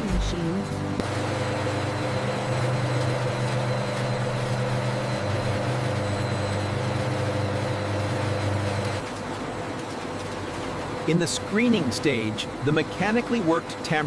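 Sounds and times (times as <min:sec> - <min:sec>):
factory machinery humming: 0:00.0 - 0:14.0
faint high whine: 0:01.0 - 0:09.0.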